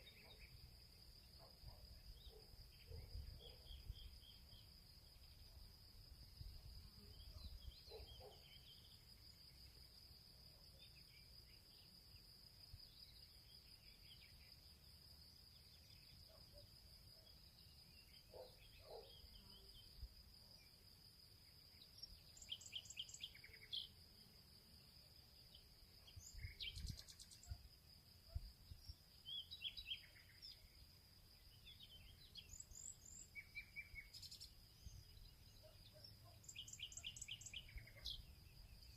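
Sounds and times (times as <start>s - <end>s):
insect trill: 0.0s - 38.9s
bird chirps and calls: 26.0s - 27.6s, 35.6s - 38.3s.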